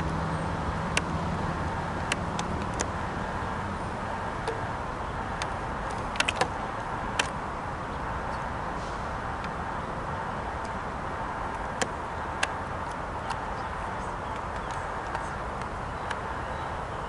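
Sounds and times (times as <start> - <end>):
sharp clicks: 2.0 - 3.0, 5.3 - 7.4, 14.2 - 16.2.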